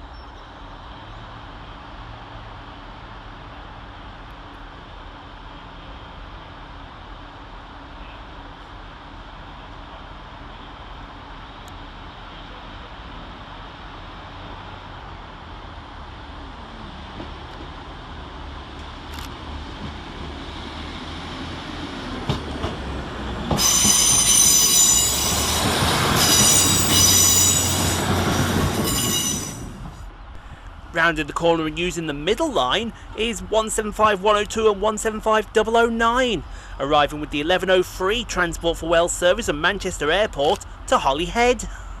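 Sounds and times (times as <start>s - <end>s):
train engines and wheels rumbling: 0.0s - 42.0s
wheel flanges squealing: 23.5s - 28.2s, 28.8s - 29.8s.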